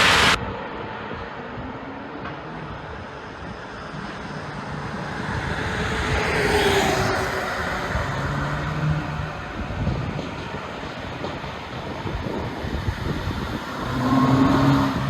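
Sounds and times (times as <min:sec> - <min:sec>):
car engine and exhaust droning: 0:00.0 - 0:10.1.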